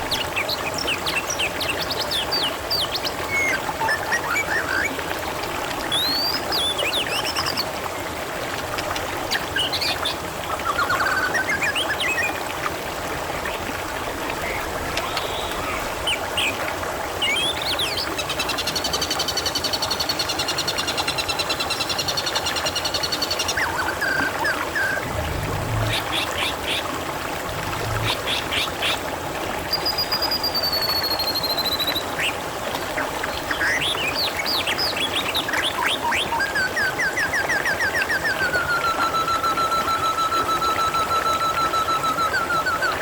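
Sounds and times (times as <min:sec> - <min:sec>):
water trickling and gurgling: 0:00.0 - 0:43.0
birds chirping: 0:21.6 - 0:29.0.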